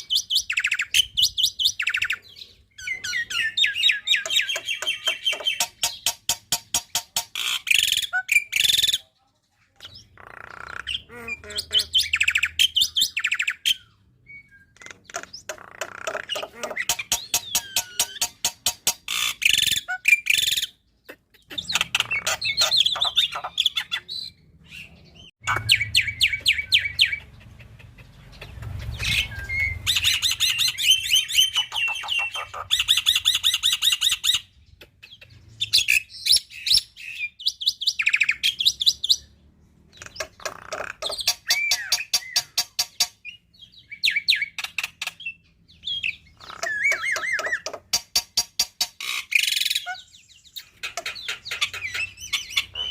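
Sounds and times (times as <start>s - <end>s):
bird singing trills and whistles: 0.0s - 9.1s, 9.8s - 27.4s, 28.4s - 39.3s, 39.9s - 48.4s, 49.0s - 52.9s.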